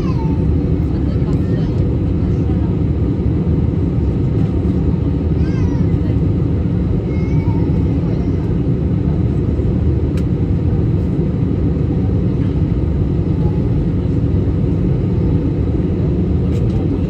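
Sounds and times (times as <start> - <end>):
airliner cabin engine rumble: 0.0 - 17.0.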